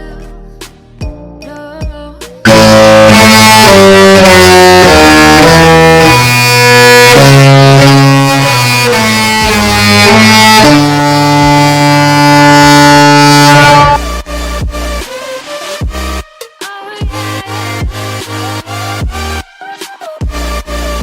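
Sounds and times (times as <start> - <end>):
musical ship horn: 2.5 - 14.6.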